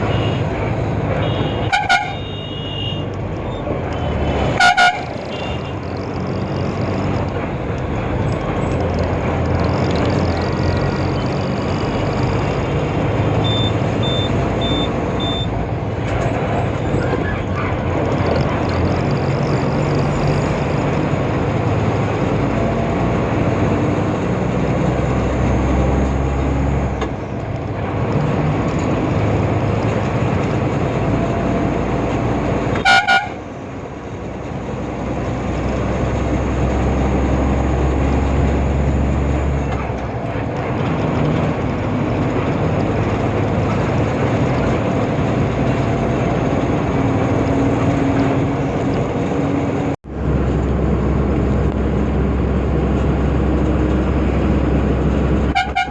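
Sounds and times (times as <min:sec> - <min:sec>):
truck horn blast: 0:00.0 - 0:03.1, 0:04.0 - 0:05.9, 0:32.7 - 0:33.5, 0:55.4 - 0:55.9
truck driving: 0:00.0 - 0:55.9.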